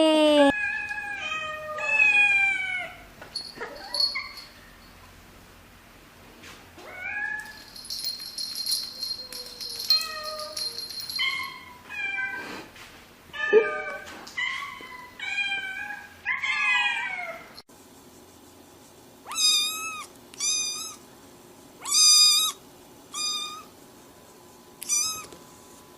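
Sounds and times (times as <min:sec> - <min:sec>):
cat meowing: 0:19.3 - 0:21.0, 0:24.8 - 0:25.3.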